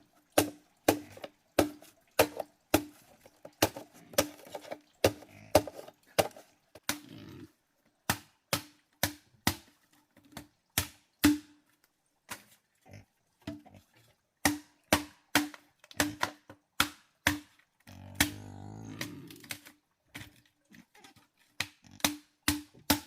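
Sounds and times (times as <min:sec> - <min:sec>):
blade chopping wood: 0:00.4 - 0:07.0, 0:14.4 - 0:17.5, 0:21.6 - 0:23.0.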